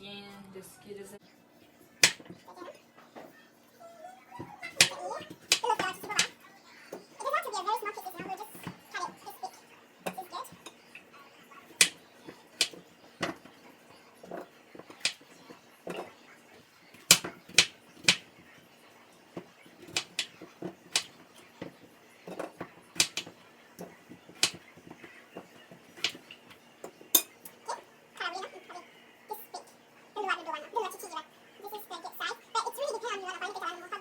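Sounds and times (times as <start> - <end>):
knife striking cutting board: 2.0 - 2.3, 17.0 - 18.2, 23.0 - 23.4, 24.3 - 24.6.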